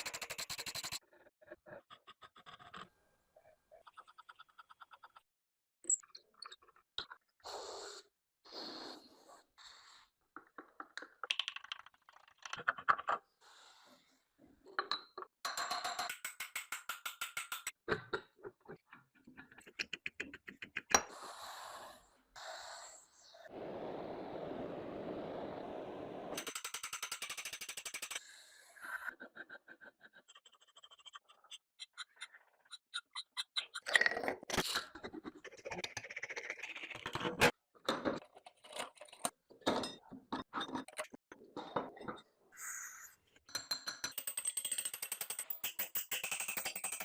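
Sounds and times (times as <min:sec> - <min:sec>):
hand tool clicks and knocks: 0:14.9 - 0:18.2.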